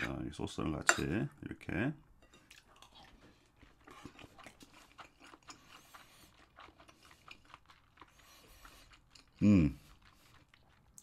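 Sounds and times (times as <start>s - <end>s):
person chewing food: 2.2s - 11.0s.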